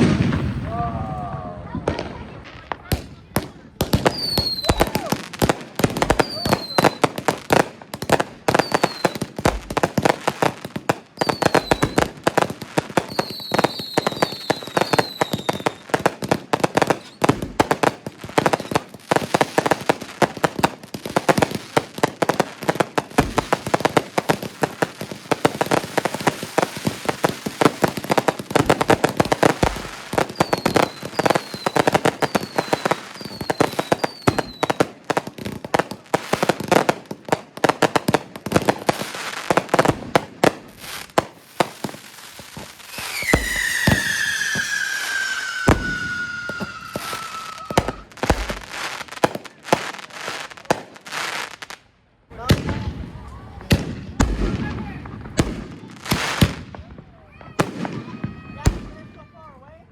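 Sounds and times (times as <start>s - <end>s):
fireworks crackling and popping: 0.0s - 59.9s
fireworks whistles falling in pitch: 4.1s - 5.2s, 6.0s - 7.2s, 11.2s - 12.1s, 13.0s - 16.0s, 16.8s - 17.4s, 29.2s - 34.8s, 42.6s - 49.1s.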